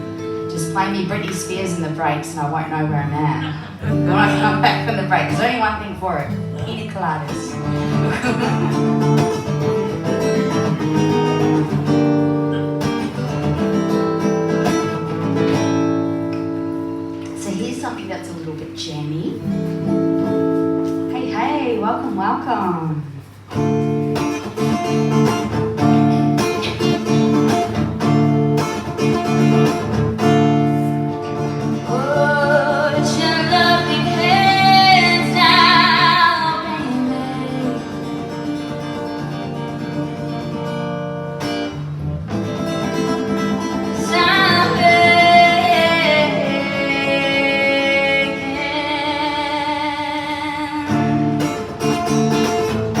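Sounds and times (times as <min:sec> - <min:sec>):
acoustic guitar strumming: 0:00.0 - 0:53.0
woman singing: 0:00.5 - 0:07.7, 0:31.6 - 0:38.5, 0:43.8 - 0:51.4.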